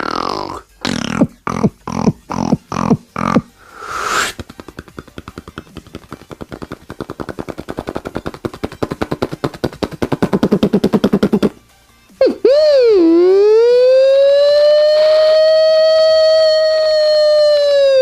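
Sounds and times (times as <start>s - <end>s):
mouth hiss: 0.0s - 4.8s
person imitating machine-gun fire: 0.0s - 11.6s.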